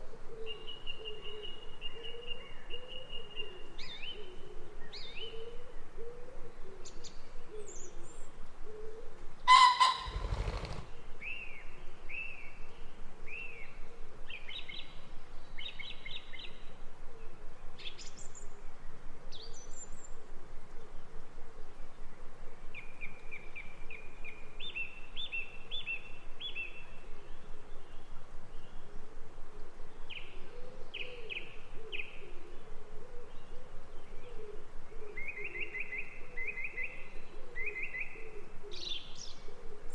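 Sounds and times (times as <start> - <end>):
birds chirping and trilling: 9.5 - 11.0
loud bird call: 9.5 - 11.0.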